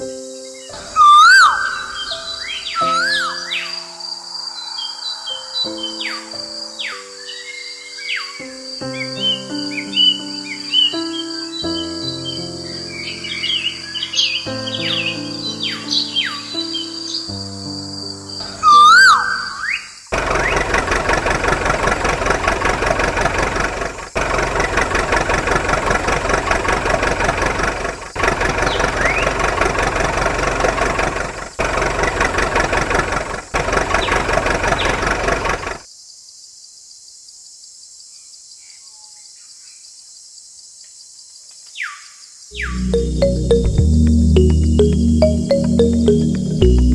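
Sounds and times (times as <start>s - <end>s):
small model engine running: 20.1s - 35.8s.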